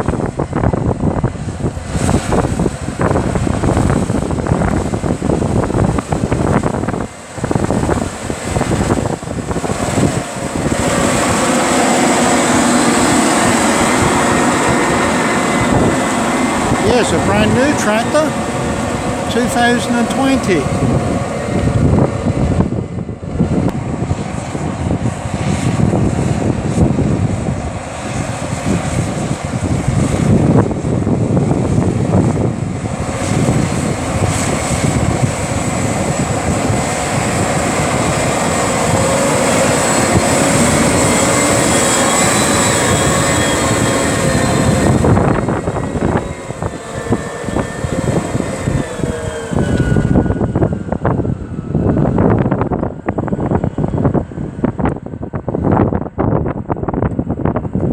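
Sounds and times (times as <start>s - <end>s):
tractor diesel engine droning: 9.8s - 23.2s, 37.5s - 52.4s
thin high whine: 14.6s - 20.8s.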